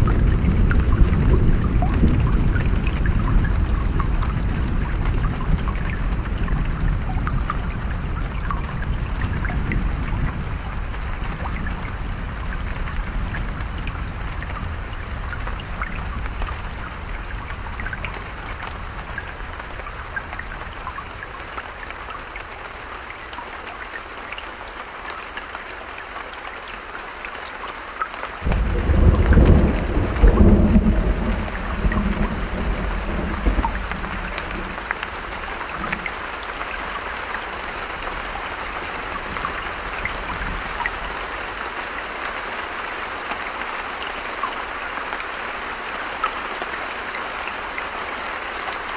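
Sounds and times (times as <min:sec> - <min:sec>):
low thunder rumble: 0:00.0 - 0:19.2, 0:28.4 - 0:36.0
steady rain: 0:00.0 - 0:48.9
thunder clap: 0:28.4 - 0:36.0.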